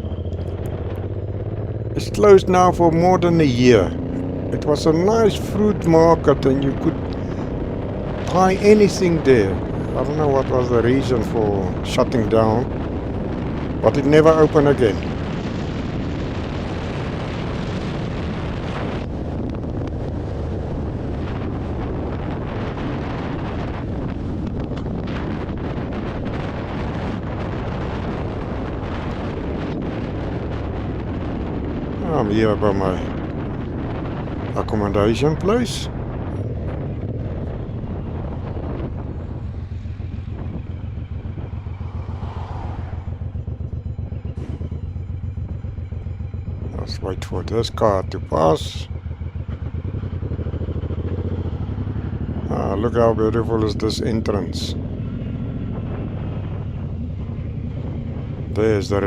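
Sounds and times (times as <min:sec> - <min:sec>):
motorcycle engine running: 0:00.0 - 0:59.0
wind rushing over microphone: 0:00.0 - 0:59.0
motorcycle engine lumpy beat: 0:43.2 - 0:52.5.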